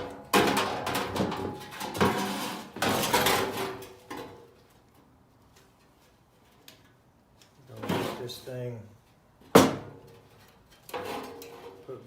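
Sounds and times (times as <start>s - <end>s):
sheet metal clanking and scraping: 0.0s - 4.3s, 10.8s - 11.8s.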